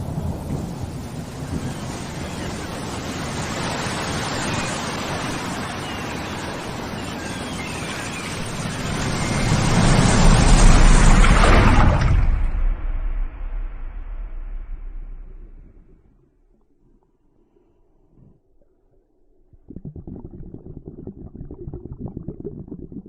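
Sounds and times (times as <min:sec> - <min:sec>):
rain rushing: 0:00.0 - 0:15.7
thunder rumbling: 0:08.4 - 0:16.2.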